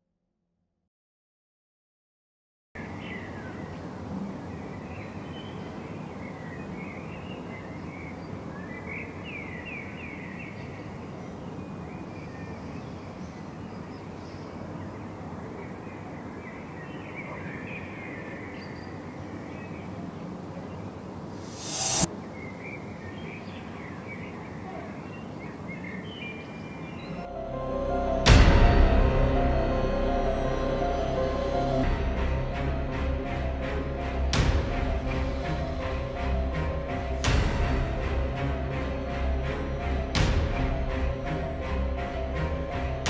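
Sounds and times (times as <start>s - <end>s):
small birds chirping and twittering: 2.8s - 27.3s
low background noise: 2.8s - 34.2s.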